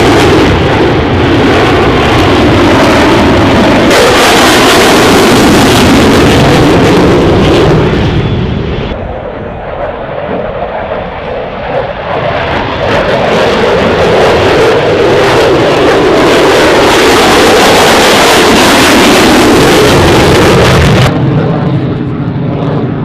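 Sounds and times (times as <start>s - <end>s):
jet aircraft roar: 0.0s - 23.0s.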